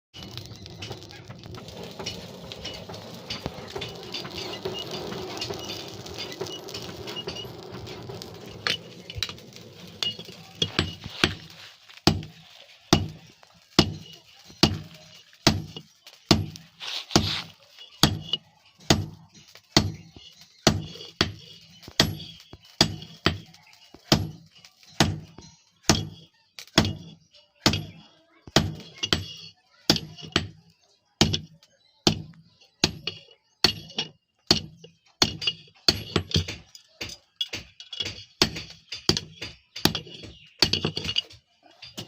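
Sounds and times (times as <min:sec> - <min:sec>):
hammer striking iron on anvil: 0:13.8 - 0:16.6, 0:32.1 - 0:41.2.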